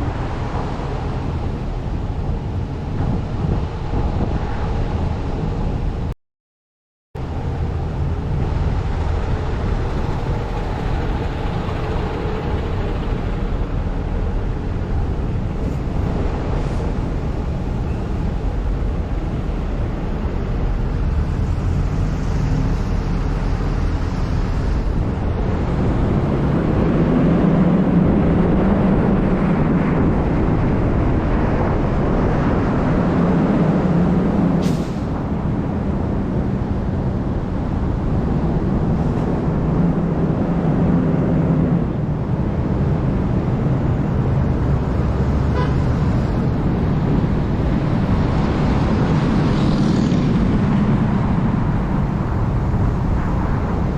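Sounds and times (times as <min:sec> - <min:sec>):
car engine and tyre rumble: 0:00.0 - 0:06.1, 0:07.2 - 0:53.9.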